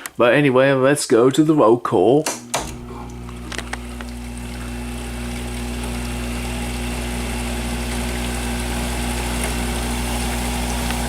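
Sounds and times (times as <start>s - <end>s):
air conditioner compressor hum: 2.2s - 11.0s
fan rushing: 2.2s - 11.0s.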